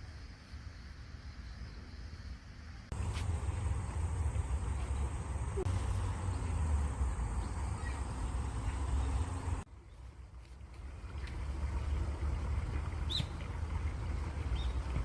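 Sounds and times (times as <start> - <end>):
faint bird chirps: 7.3 - 10.0
water rushing: 10.8 - 15.0.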